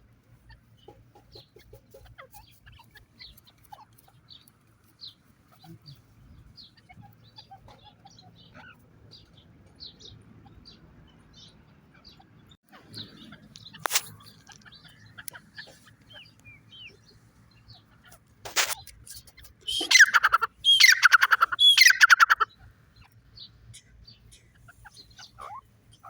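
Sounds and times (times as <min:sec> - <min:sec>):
partridge chirps and calls: 0:00.8 - 0:26.0
sharp click: 0:13.8 - 0:14.2, 0:18.5 - 0:19.1.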